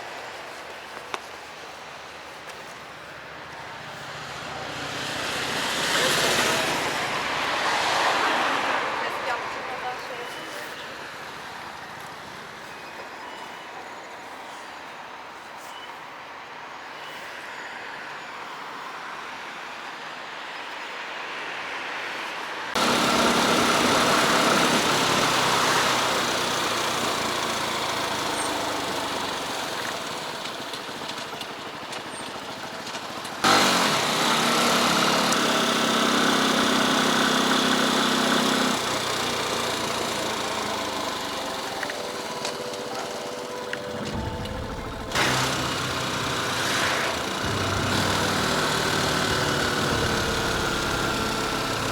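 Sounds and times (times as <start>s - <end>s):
wind and road noise: 0.0s - 51.9s
motorcycle engine running: 22.8s - 51.9s.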